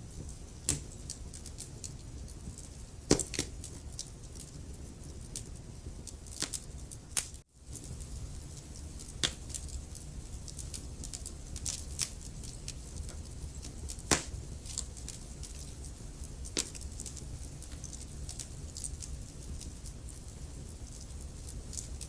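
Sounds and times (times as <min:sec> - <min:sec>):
logs crackling in fireplace: 0:00.0 - 0:22.0
low rumble of flames: 0:00.0 - 0:22.0
sharp fire pops: 0:00.1 - 0:22.0.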